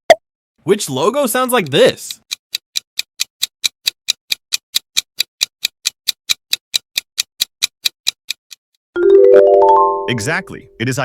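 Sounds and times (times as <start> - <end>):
clock ticking fast: 1.5 - 8.6.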